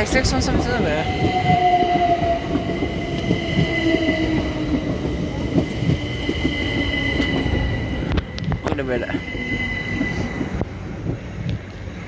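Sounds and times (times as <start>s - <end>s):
electric train rumble and whine: 0.0s - 12.0s.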